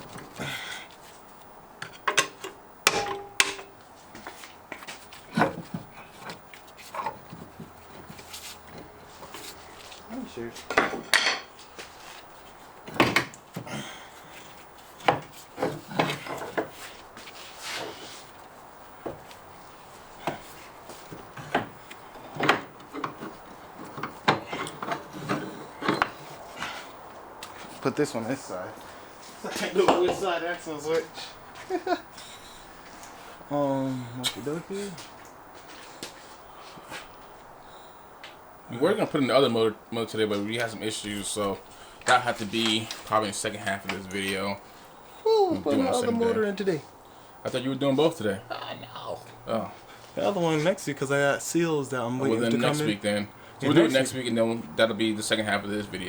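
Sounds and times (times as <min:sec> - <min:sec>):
metal clanks and knocks: 0:01.8 - 0:03.8
hand tools knocking and scraping: 0:01.8 - 0:28.0, 0:28.8 - 0:32.5, 0:40.3 - 0:44.6.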